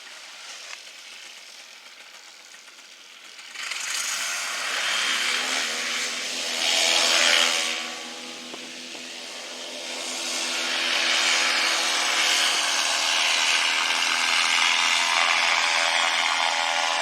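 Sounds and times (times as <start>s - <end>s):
loud rushing whirring noise: 4.0s - 17.0s.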